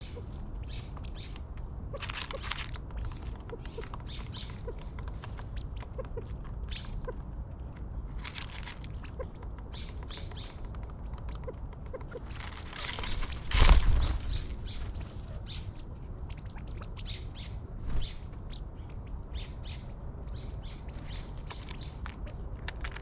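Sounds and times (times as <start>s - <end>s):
birds chirping: 0.0s - 23.0s
low background rumble: 0.0s - 23.0s
harsh rasping bird calls: 8.2s - 22.4s.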